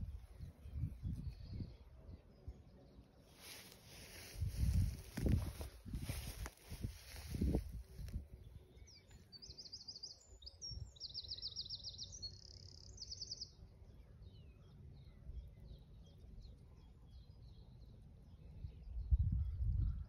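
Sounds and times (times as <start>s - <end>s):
songbird singing trills: 0.0s - 20.0s.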